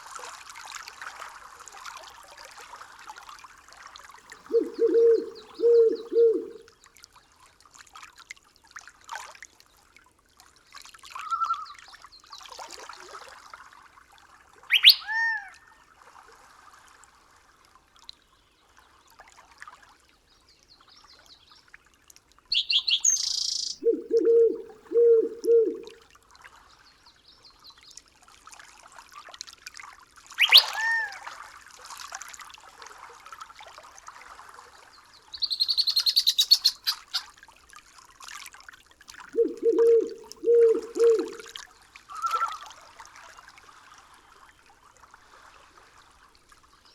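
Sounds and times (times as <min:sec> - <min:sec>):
low hoots: 0:04.4 - 0:06.7, 0:22.6 - 0:26.0, 0:39.3 - 0:41.5
sharp downward sweeping bird call: 0:04.5 - 0:06.6, 0:14.7 - 0:15.2, 0:22.5 - 0:25.9, 0:30.4 - 0:31.1, 0:35.4 - 0:37.2, 0:39.4 - 0:41.5.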